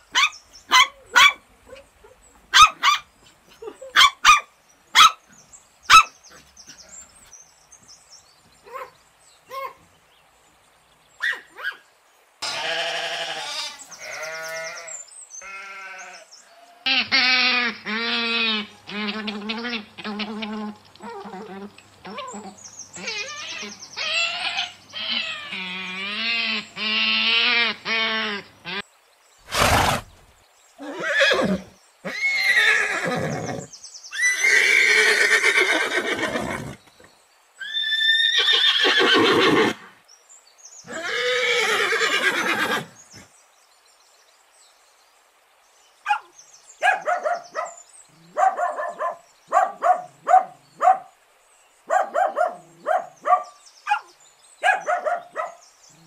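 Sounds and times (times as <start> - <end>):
horses neighing: 29.4 - 30.2, 30.8 - 36.9, 37.6 - 39.9, 40.9 - 42.9.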